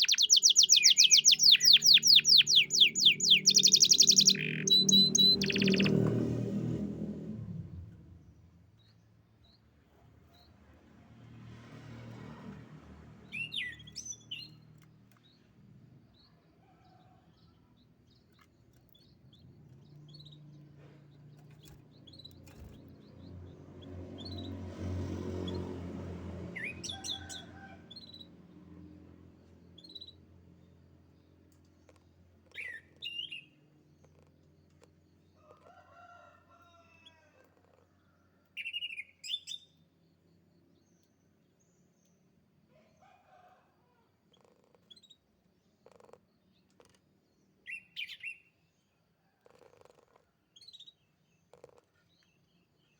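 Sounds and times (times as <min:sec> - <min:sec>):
canary chirping: 0:00.0 - 0:06.1, 0:13.2 - 0:15.2, 0:21.3 - 0:24.7.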